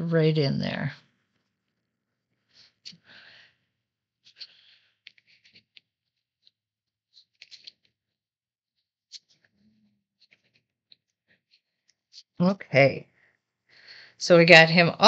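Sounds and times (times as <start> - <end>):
paper rustling and ticking: 4.2 - 8.0.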